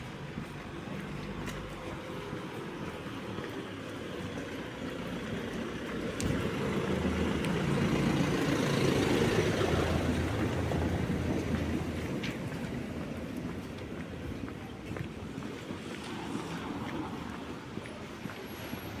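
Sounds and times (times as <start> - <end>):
tyres hissing on wet street: 0.0 - 19.0
vehicle engine hum: 0.0 - 19.0.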